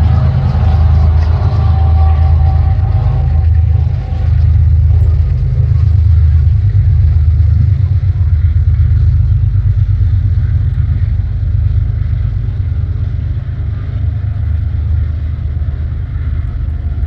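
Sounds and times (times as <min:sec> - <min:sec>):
freight train passing: 0:00.0 - 0:17.0.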